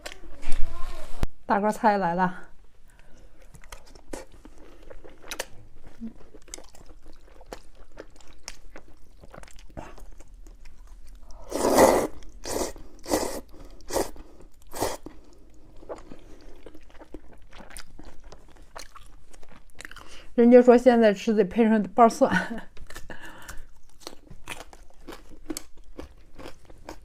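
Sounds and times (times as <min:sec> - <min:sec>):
close-miked chewing: 0:03.0 - 0:11.5, 0:12.1 - 0:20.3, 0:22.8 - 0:27.0.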